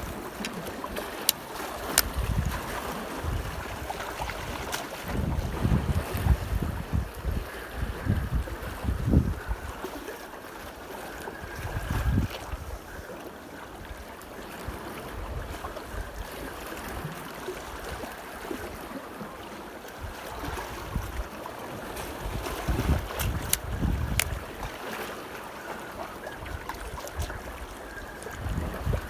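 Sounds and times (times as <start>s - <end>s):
wind buffeting microphone: 0.0s - 9.9s, 11.4s - 13.0s, 20.0s - 24.9s, 26.4s - 29.0s
sharp clicks: 0.4s - 2.2s, 23.2s - 24.4s.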